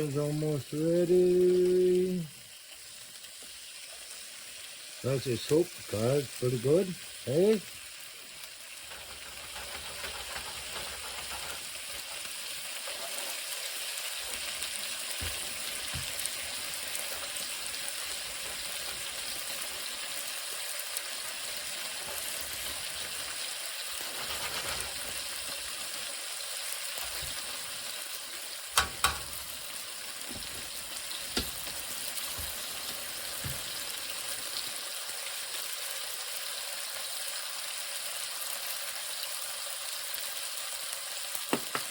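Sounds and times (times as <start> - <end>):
chicken sizzling in a pan: 0.0 - 41.9.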